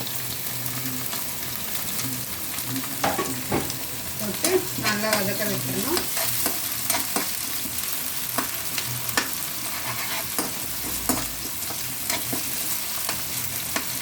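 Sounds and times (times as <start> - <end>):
onion and tomato sizzling in oil: 0.0 - 14.0
spatula scraping and knocking pan: 8.3 - 14.0.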